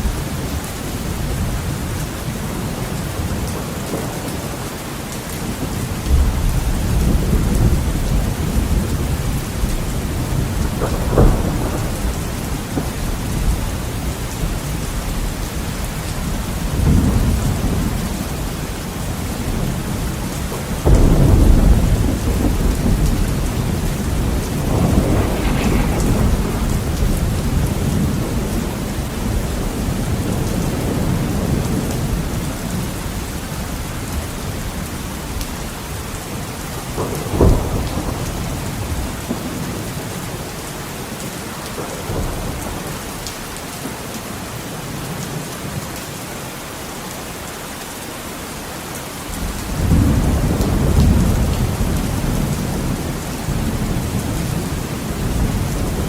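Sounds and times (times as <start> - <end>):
heavy rain on a window: 0.0 - 56.0
rolling thunder: 5.4 - 40.6, 49.4 - 56.0
sharp thunderclap: 6.0 - 15.3, 20.6 - 32.8, 36.9 - 39.8.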